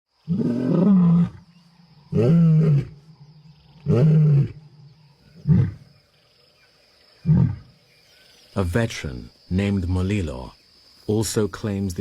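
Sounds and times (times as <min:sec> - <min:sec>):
lion roaring: 0:00.3 - 0:05.9, 0:07.2 - 0:07.8.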